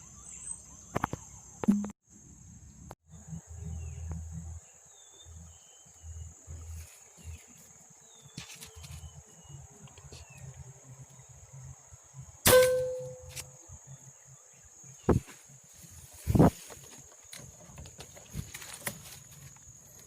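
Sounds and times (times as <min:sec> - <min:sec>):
air rifle shot: 0:12.5 - 0:13.1.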